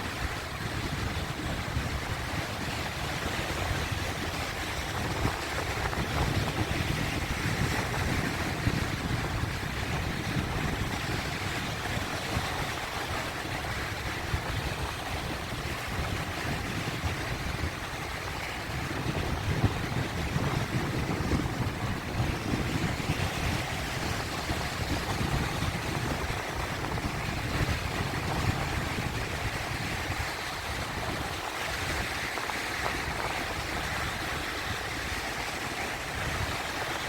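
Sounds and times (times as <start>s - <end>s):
sea waves washing in: 0.0s - 37.0s.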